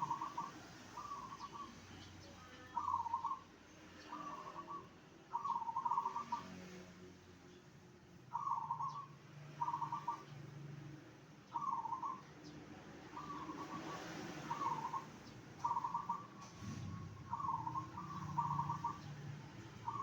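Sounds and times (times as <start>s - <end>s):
dove cooing: 0.0s - 1.7s, 4.2s - 6.4s, 8.3s - 10.3s, 13.2s - 19.1s, 19.8s - 20.0s.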